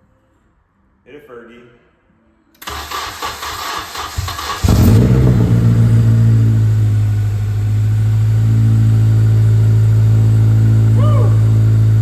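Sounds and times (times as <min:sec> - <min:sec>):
car engine cranking: 0:02.6 - 0:08.0
car engine running steadily: 0:02.6 - 0:12.0.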